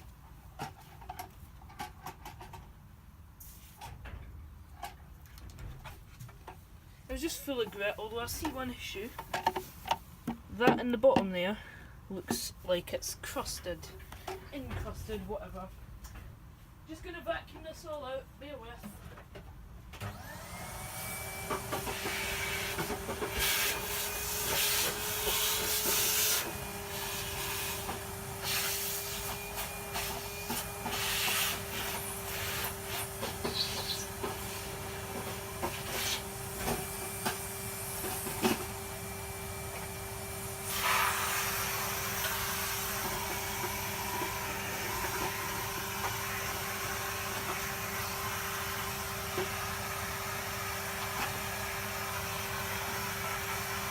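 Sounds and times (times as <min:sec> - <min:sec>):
vacuum cleaner running: 0:20.0 - 0:53.9.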